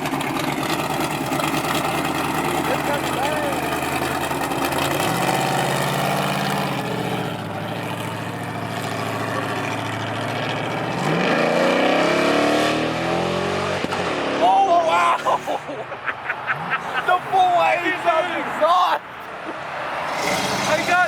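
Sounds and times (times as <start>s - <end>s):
car engine accelerating: 0.0s - 14.7s, 19.2s - 21.0s.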